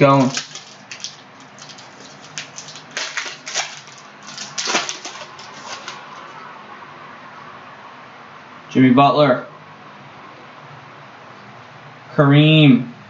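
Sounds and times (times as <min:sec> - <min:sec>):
card pack crinkling: 0:00.0 - 0:06.4.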